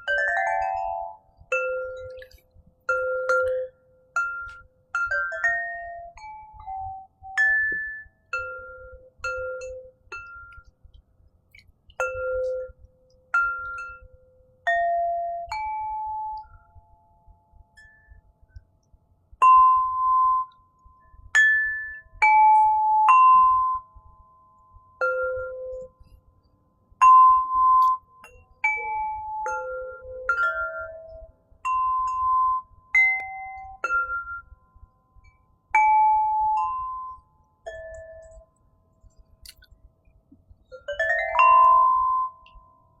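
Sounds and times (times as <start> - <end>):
crystal harp melody: 0.0 - 10.7, 11.9 - 18.3, 19.4 - 23.9, 27.0 - 34.6, 35.2 - 38.7, 40.6 - 43.0.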